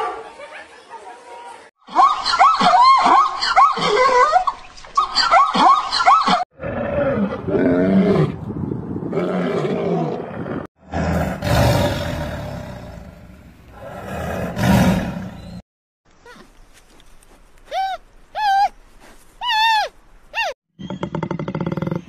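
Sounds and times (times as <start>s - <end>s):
tiger roaring and growling: 6.6s - 15.6s
high-pitched animal calls: 19.4s - 21.2s.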